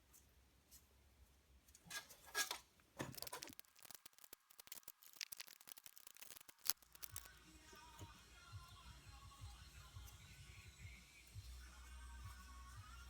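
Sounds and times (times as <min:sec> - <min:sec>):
scraping and crackling: 0:02.3 - 0:07.3
small clicks: 0:03.0 - 0:07.3.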